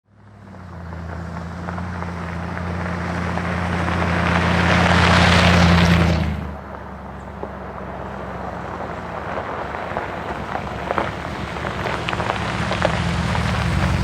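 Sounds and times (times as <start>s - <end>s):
vehicle engine low hum: 0.1s - 14.0s
rushing noise: 11.5s - 14.0s.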